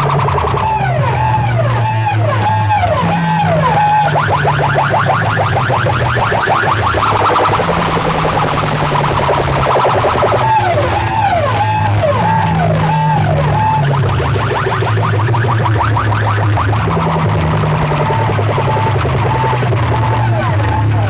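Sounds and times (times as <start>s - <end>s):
loud electronic music with heavy bass: 0.0s - 21.0s.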